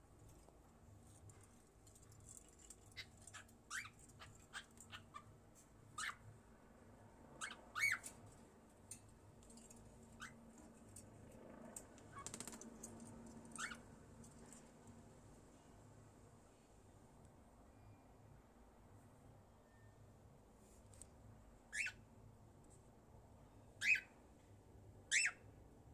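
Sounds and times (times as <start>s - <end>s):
small bird chirping: 2.5s - 6.3s, 7.4s - 8.3s, 10.1s - 10.4s, 12.1s - 12.6s, 13.5s - 13.9s, 21.7s - 22.0s, 23.8s - 24.2s, 25.1s - 25.4s
bird fluttering trill: 12.0s - 12.7s, 13.5s - 13.9s.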